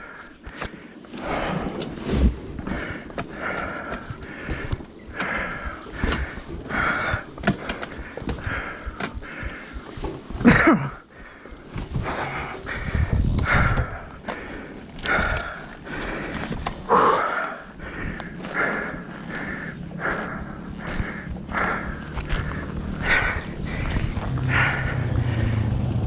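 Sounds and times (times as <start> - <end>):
person breathing hard: 0.0 - 26.0
person grunting: 10.4 - 11.0.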